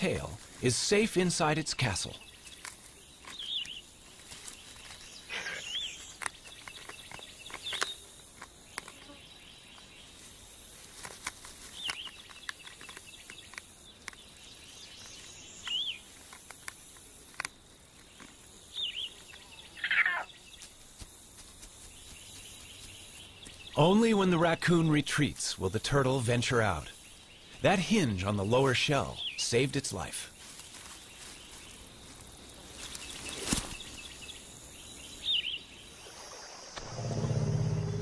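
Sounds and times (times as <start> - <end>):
steady hiss: 0.0 - 19.5
bird chirps: 1.7 - 8.0, 11.7 - 16.1, 18.1 - 20.7, 26.5 - 29.6, 32.8 - 38.0.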